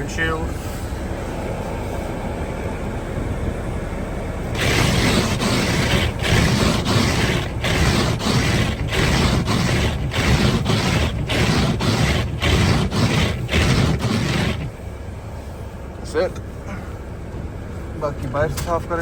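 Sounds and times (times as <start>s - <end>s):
windshield wipers scraping: 4.6s - 14.8s.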